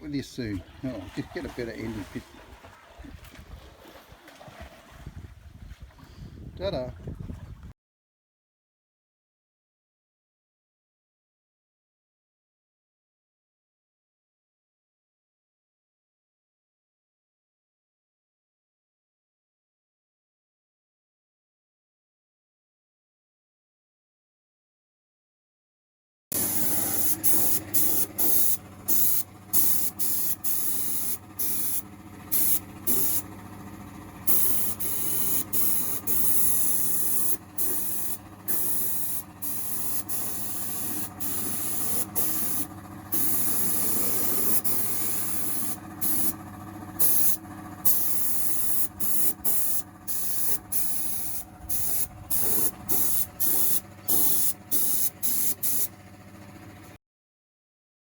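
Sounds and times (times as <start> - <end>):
sandblaster hissing in bursts: 26.3 - 33.4, 34.2 - 46.4, 47.0 - 55.9.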